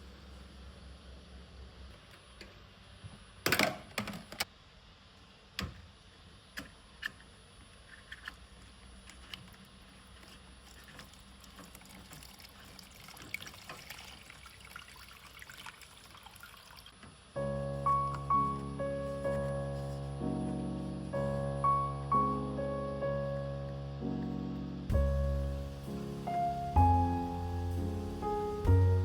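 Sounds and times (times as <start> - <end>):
water dripping and trickling: 10.6 - 17.0
water splashing and pouring: 10.6 - 17.0.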